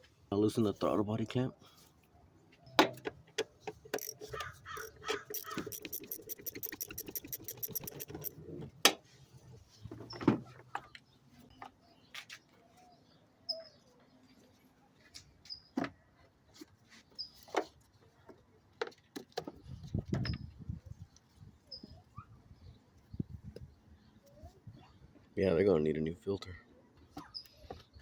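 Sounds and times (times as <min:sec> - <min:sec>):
tools knocking and clattering: 0:02.8 - 0:08.4
ratchet clicking rapidly: 0:03.9 - 0:08.4
faint bird chirps: 0:11.1 - 0:14.7, 0:19.8 - 0:25.1.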